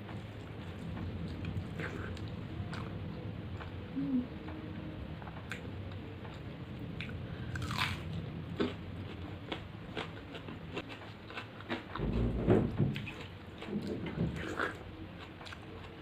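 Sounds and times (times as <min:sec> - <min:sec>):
chewing and biting food: 0:07.0 - 0:12.0.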